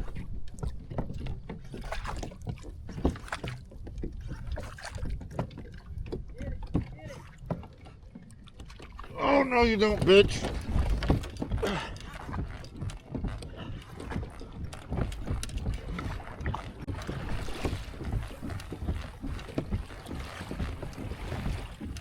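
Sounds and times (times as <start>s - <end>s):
water against kayak hull: 0.0s - 22.0s
wind rumbling on microphone: 9.8s - 22.0s.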